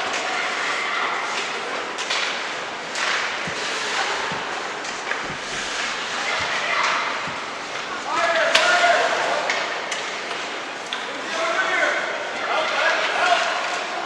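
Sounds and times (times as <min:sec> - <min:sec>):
hockey sticks clacking: 0:01.3 - 0:11.1
skates scraping ice: 0:01.4 - 0:10.1.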